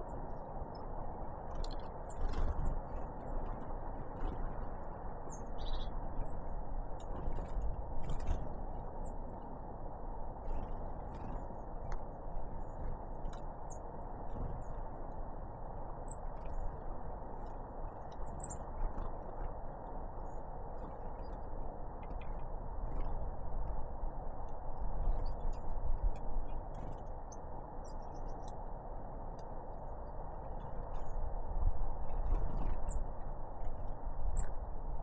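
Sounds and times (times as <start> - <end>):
small birds chirping: 1.6 - 9.4, 16.1 - 19.4, 25.0 - 28.7.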